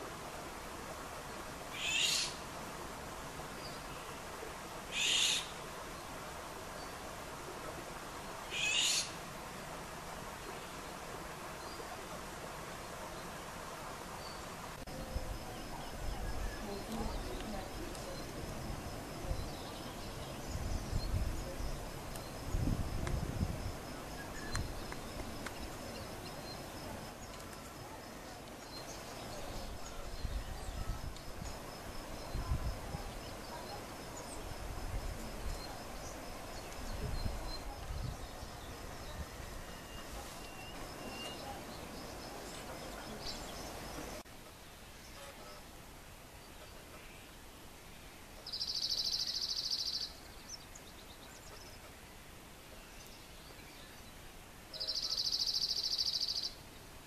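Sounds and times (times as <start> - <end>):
small songbird chirping: 14.1 - 45.6, 46.3 - 56.9.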